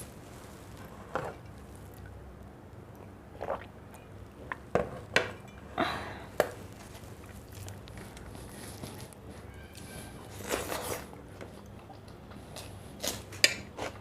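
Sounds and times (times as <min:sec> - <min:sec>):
wet chewing noises: 0:06.7 - 0:09.2.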